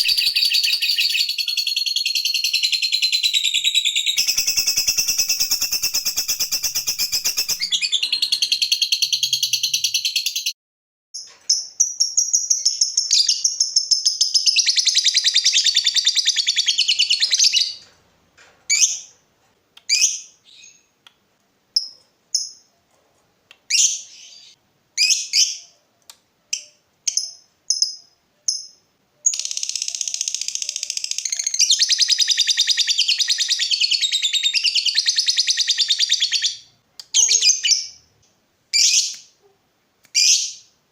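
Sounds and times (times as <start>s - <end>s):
bird chattering trills: 0.0s - 1.7s, 4.1s - 10.5s
short bird chirps: 0.0s - 10.6s.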